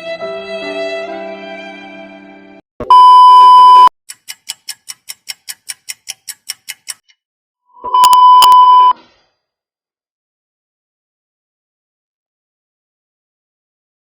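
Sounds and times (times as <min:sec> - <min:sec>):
high censor bleep: 0:02.8 - 0:03.9, 0:07.8 - 0:09.0
quick ticks: 0:04.1 - 0:07.2.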